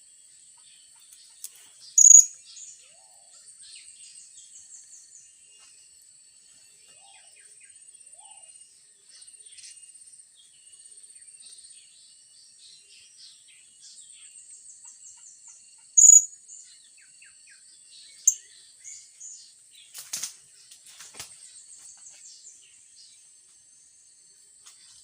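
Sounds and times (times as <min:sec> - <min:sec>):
parrots chirping: 0:02.0 - 0:02.4, 0:16.0 - 0:16.3
brief rustle: 0:19.9 - 0:22.3.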